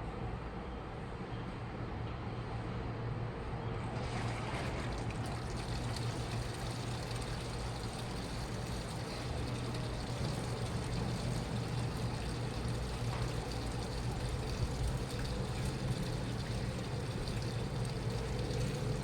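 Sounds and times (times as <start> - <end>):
washing machine motor hum: 3.7 - 19.0
water sloshing in machine: 3.8 - 19.0.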